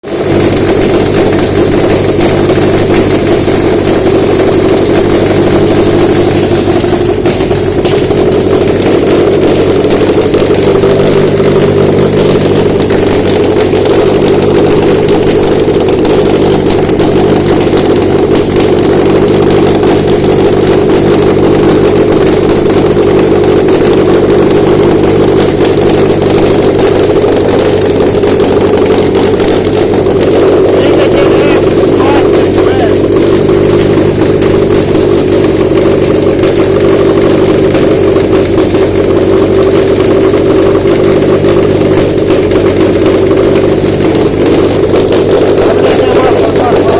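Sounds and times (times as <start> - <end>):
petrol engine running: 0.0 - 46.9.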